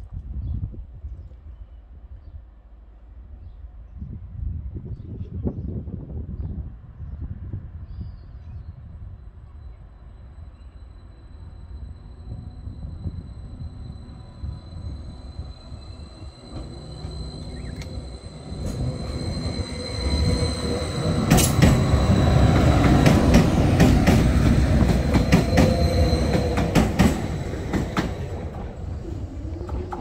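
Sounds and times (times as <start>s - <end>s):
train passing: 9.2s - 30.0s.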